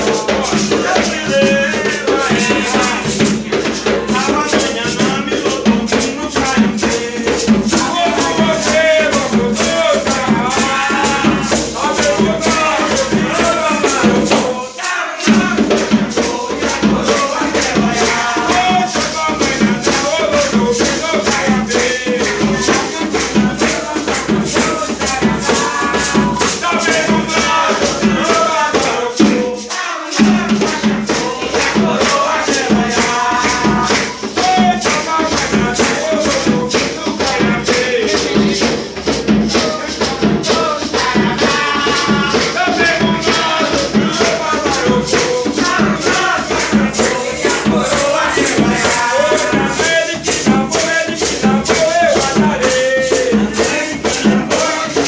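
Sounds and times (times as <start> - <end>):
person singing: 0.0 - 55.0
shaken rattle: 0.0 - 55.0.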